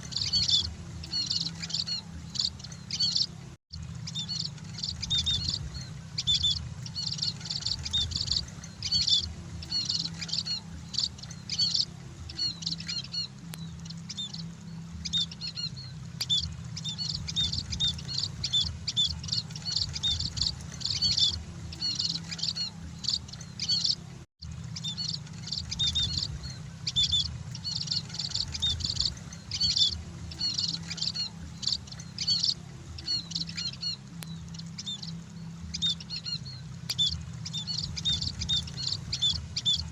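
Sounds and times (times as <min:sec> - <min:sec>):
birds chirping: 0:00.0 - 0:39.9
steady low hum: 0:00.0 - 0:39.9.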